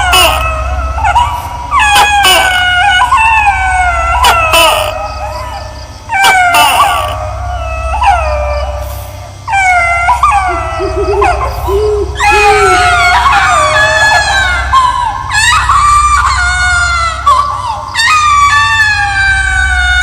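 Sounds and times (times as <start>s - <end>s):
high-pitched screaming wails: 0.0s - 20.0s
low rumble: 7.4s - 17.4s.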